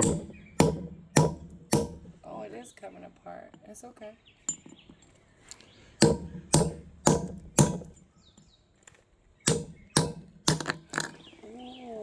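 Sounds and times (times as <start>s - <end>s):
hammer striking metal spike: 0.0s - 2.1s, 6.0s - 8.0s, 9.5s - 10.8s.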